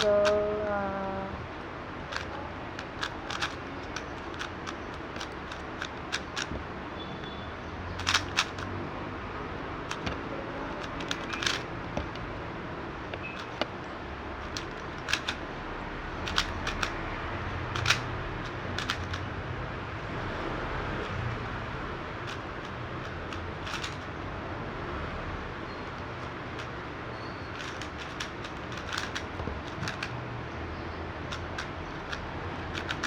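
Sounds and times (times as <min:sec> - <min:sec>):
speed cube clicking: 0:00.0 - 0:00.8, 0:02.0 - 0:06.6, 0:08.0 - 0:08.8, 0:09.8 - 0:12.4, 0:13.0 - 0:13.8, 0:14.4 - 0:19.5, 0:20.9 - 0:24.2, 0:25.8 - 0:33.0
low background hum: 0:00.0 - 0:33.0.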